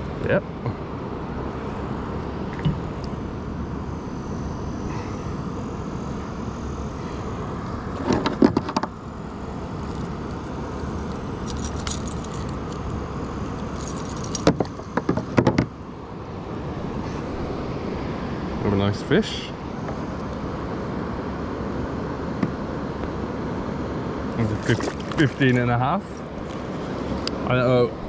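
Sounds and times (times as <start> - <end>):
steady rumble: 0.0 - 28.0
rattling metallic clatter: 13.5 - 15.6.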